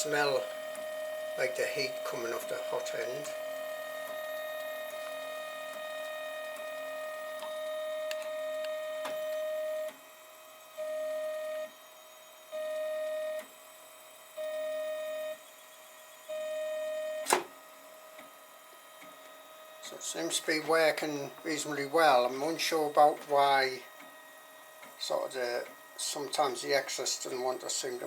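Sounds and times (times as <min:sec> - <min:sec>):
stepper motors whining: 0:00.0 - 0:10.0.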